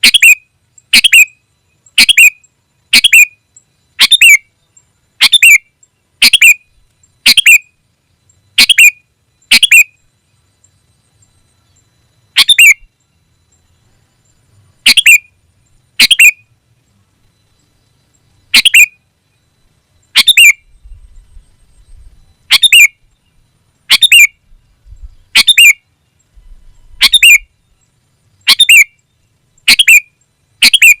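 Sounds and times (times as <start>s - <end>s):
bulbul chirping: 0.0s - 1.4s, 2.0s - 3.4s, 4.0s - 4.4s, 5.2s - 7.7s, 8.6s - 10.0s, 12.4s - 12.9s, 14.8s - 15.3s, 16.0s - 16.4s, 18.5s - 19.0s, 20.1s - 20.8s, 22.4s - 23.0s, 23.9s - 24.4s, 26.9s - 27.5s, 28.4s - 28.9s, 29.6s - 31.0s.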